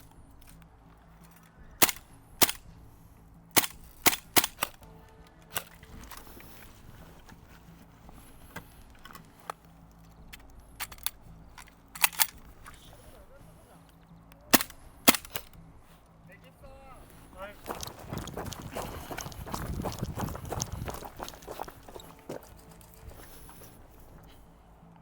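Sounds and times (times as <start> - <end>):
airsoft rifle shots: 1.8 - 2.7, 3.5 - 4.8, 14.5 - 15.6.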